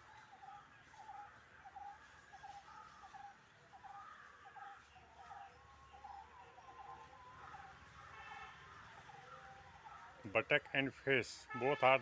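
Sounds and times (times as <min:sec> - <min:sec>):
faint birds chirping: 0:00.0 - 0:11.8.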